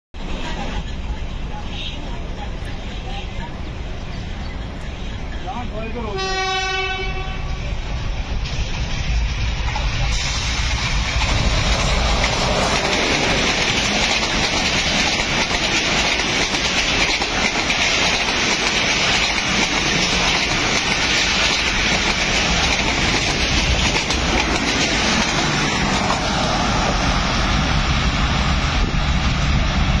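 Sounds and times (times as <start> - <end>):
train coaches rumbling past: 0.2 - 30.0
wheels clattering over rail joints: 10.9 - 26.4.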